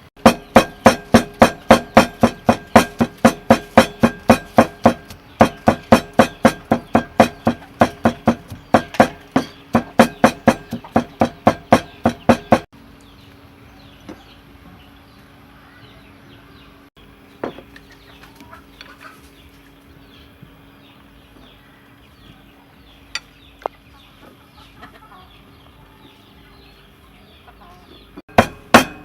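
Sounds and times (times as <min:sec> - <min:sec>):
knocking strikes with ringing tone: 0:00.2 - 0:12.7, 0:28.3 - 0:29.0.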